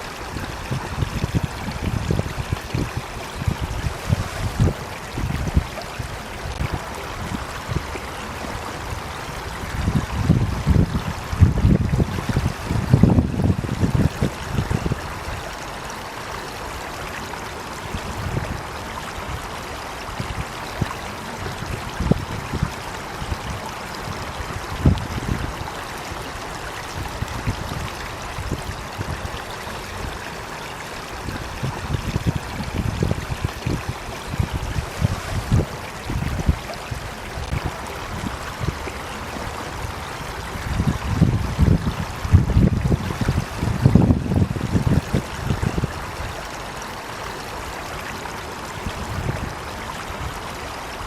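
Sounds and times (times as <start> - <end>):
water rushing in a stream: 0.0 - 51.0
wind rumbling on microphone: 0.0 - 51.0.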